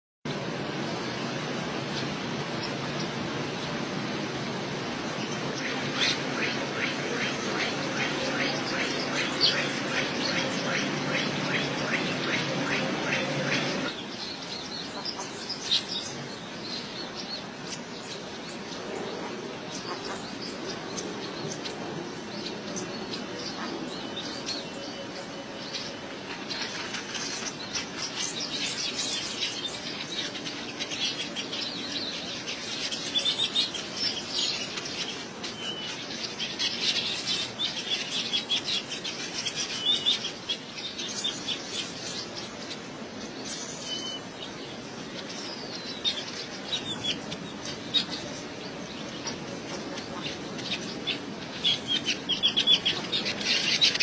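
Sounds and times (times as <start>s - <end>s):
small birds chirping: 0.4s - 54.0s.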